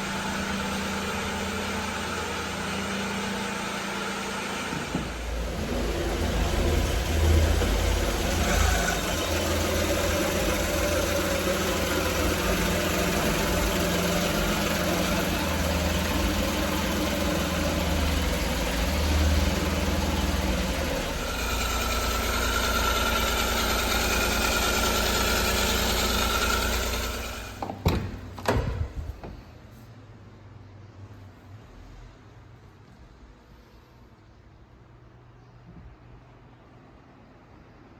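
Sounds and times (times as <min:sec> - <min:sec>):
small truck engine idling: 0:00.0 - 0:29.5
sharp knocks: 0:27.6 - 0:29.4.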